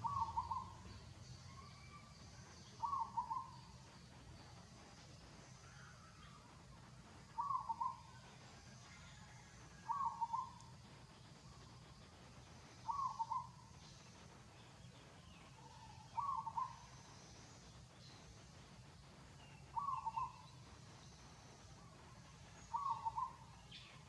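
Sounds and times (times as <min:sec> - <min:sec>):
animal calls: 0:00.0 - 0:00.8, 0:12.8 - 0:13.6.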